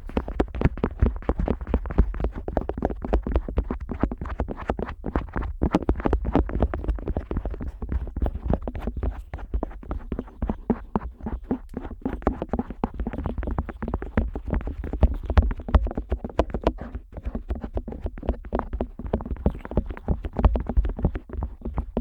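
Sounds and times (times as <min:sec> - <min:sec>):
scratchy rubbing on microphone: 0:00.0 - 0:22.0.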